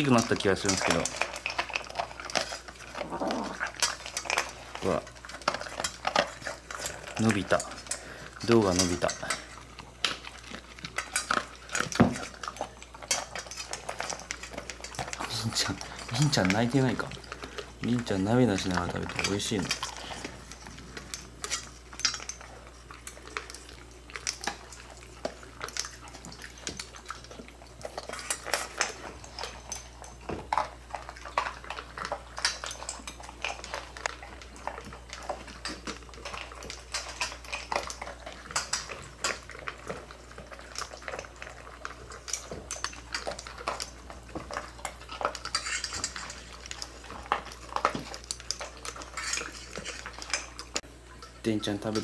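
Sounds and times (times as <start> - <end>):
cats eating: 0.0 - 52.0
food bowls clinking: 0.0 - 52.0.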